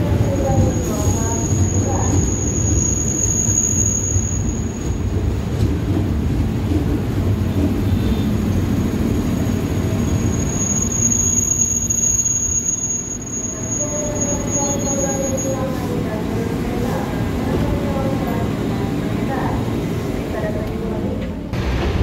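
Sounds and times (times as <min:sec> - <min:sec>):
train wheels rumbling on rails: 0:00.0 - 0:12.0, 0:13.2 - 0:22.0
thin high whistle: 0:10.2 - 0:15.6.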